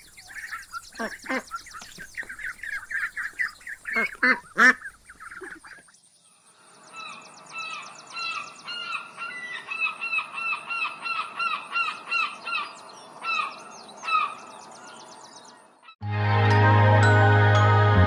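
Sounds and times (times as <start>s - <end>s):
ducklings peeping: 0.0s - 5.9s
gulls calling: 0.0s - 5.9s.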